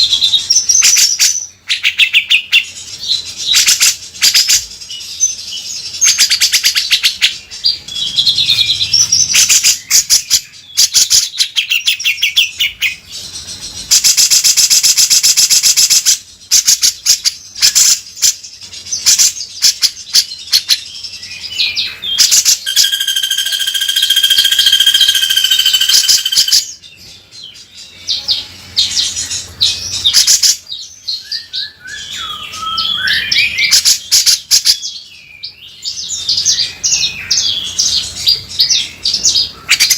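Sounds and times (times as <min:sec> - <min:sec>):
bird whistle: 0:21.6 - 0:26.8, 0:31.2 - 0:34.8
bulbul rattling trills: 0:21.8 - 0:30.6
gliding bird notes: 0:22.6 - 0:26.7.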